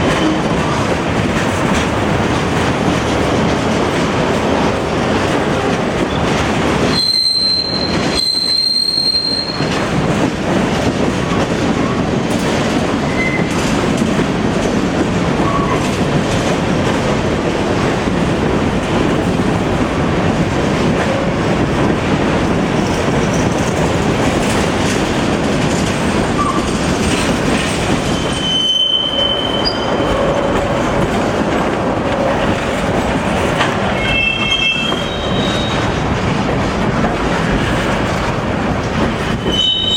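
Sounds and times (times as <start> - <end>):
train wheels clattering on rail: 0.0 - 39.9
high-pitched wheel squeals: 6.9 - 9.7, 28.2 - 30.1, 34.0 - 35.8, 39.5 - 39.9.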